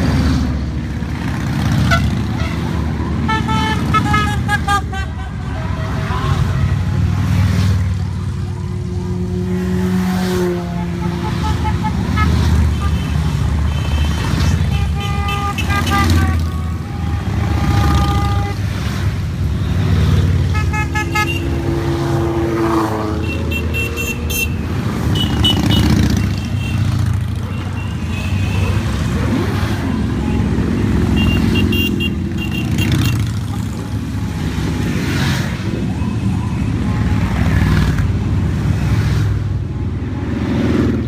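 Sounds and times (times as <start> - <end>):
motorcycle horns beeping: 1.7 - 6.8, 10.5 - 18.9, 20.2 - 22.3, 23.1 - 34.5
motorcycles riding past: 5.3 - 41.0.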